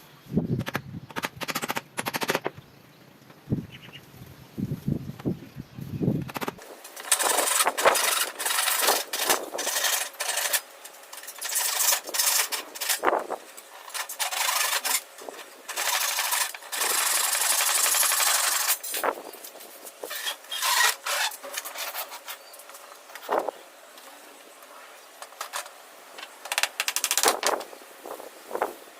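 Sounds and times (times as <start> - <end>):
hand tool rasping on wood: 7.0 - 10.6.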